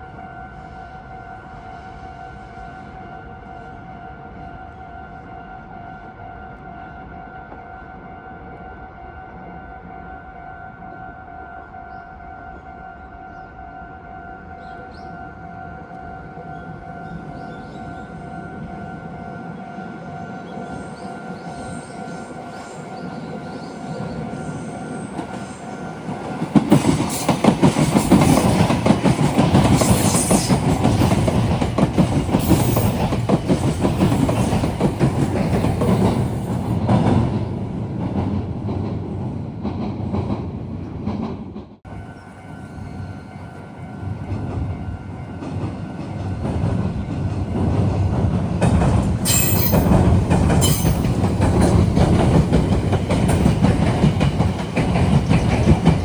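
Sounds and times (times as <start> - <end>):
train wheels clattering over joints: 25.2 - 37.3, 45.5 - 56.0.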